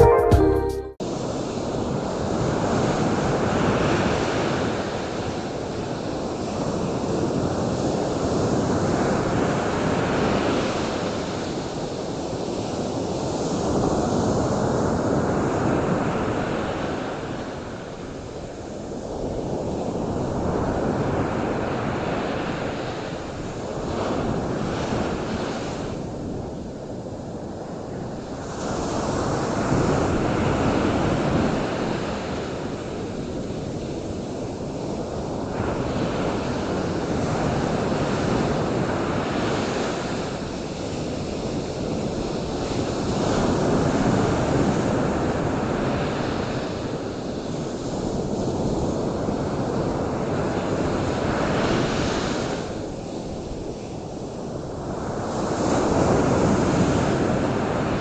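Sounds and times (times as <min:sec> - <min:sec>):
wind: 0:02.3 - 0:58.0
ocean waves breaking on shore: 0:28.6 - 0:58.0.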